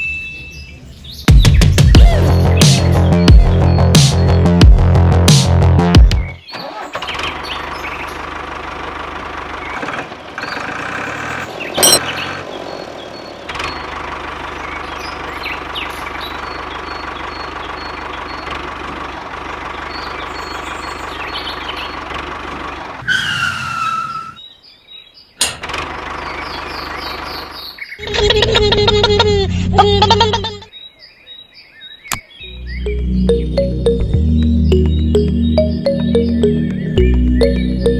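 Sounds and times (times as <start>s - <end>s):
birds chirping: 0.0s - 5.1s, 6.0s - 37.9s
music: 1.3s - 6.4s, 32.5s - 37.9s
small engine running: 6.7s - 23.0s.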